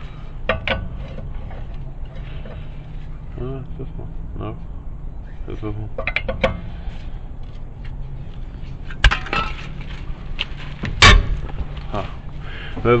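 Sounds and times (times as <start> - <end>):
sharp bangs of lug nut: 10.9 - 11.6.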